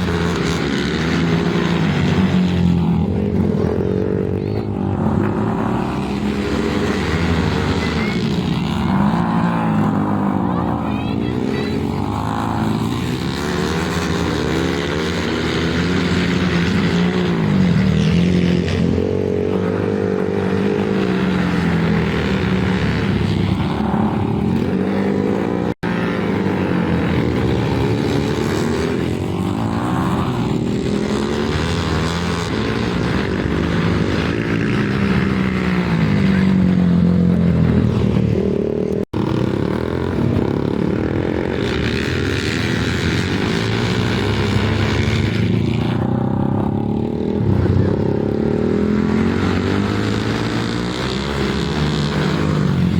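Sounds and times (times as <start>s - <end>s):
racing motorcycle engines revving: 0.0s - 52.9s.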